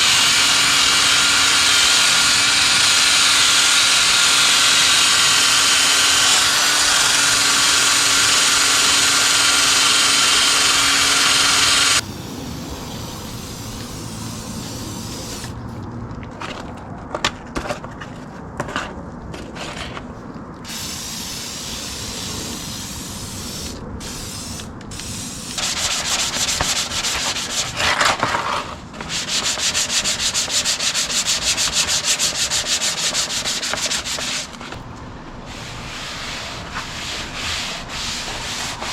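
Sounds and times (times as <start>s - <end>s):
fast back-and-forth rubbing: 0.0s - 12.0s, 24.0s - 38.9s
sanding with steady whine: 0.0s - 15.4s, 20.7s - 34.8s, 35.4s - 38.9s
quiet scraping: 15.7s - 20.4s.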